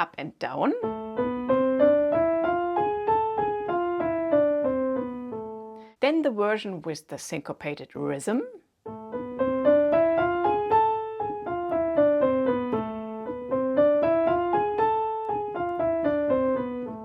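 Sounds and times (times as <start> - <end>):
piano playing a scale: 0.8 - 6.0, 8.8 - 17.0.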